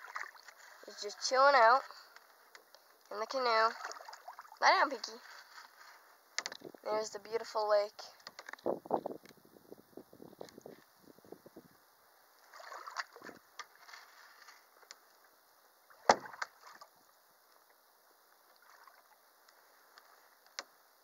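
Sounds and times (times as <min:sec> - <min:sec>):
water swishing: 0:00.0 - 0:02.1, 0:03.2 - 0:06.2, 0:12.4 - 0:14.8, 0:15.8 - 0:17.2, 0:18.4 - 0:20.4
knocks against canoe hull: 0:16.0 - 0:16.5.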